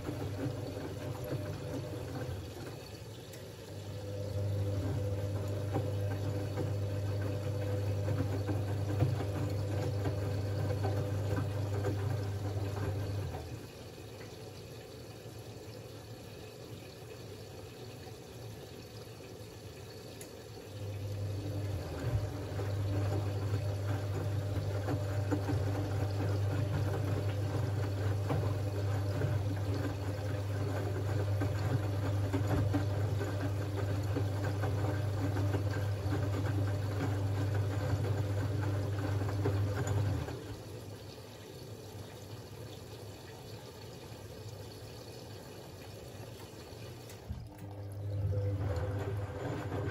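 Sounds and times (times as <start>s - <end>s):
washing machine drum turning: 0.0s - 13.8s, 20.8s - 40.7s, 47.0s - 49.9s
motor hum: 0.0s - 14.3s, 20.1s - 41.1s, 46.4s - 49.9s.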